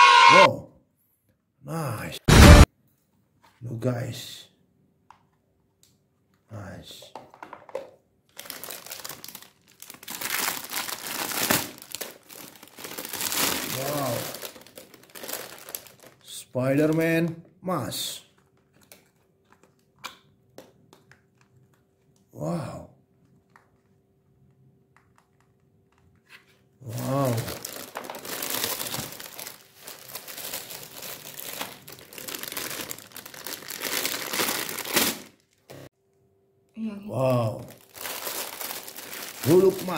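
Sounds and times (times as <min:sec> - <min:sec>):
plastic packaging crinkling: 0:08.3 - 0:17.0, 0:18.3 - 0:20.0, 0:26.9 - 0:35.7, 0:37.6 - 0:39.9.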